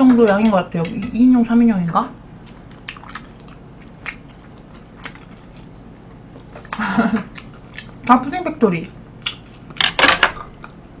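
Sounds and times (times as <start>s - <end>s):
soft wet chewing: 2.3s - 9.8s, 10.4s - 10.8s.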